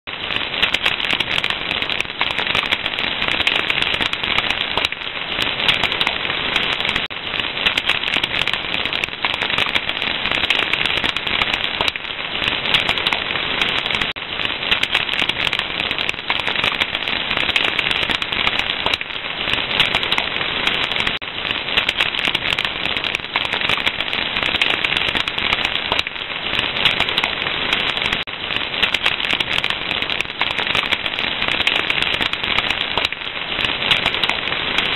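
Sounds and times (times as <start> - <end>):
fire crackling: 0.1 - 34.9.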